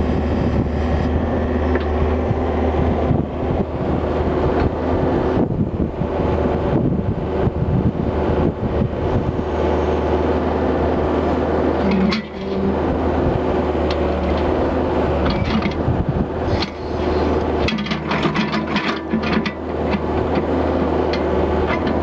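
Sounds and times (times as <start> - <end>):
excavator diesel engine running: 0.0 - 22.0
metallic clanks and rattles: 11.8 - 12.6, 17.6 - 20.5.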